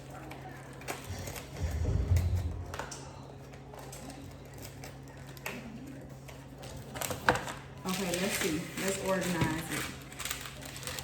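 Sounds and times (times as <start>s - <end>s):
packaging being handled: 6.6s - 11.0s.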